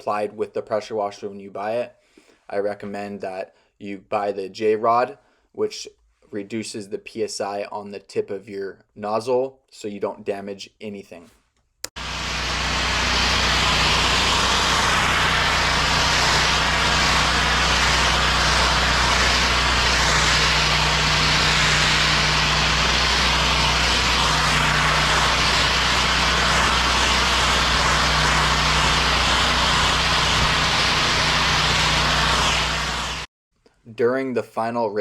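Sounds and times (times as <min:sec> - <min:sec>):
pressure washer engine running: 0:12.0 - 0:33.3
water spraying hiss: 0:12.0 - 0:33.3.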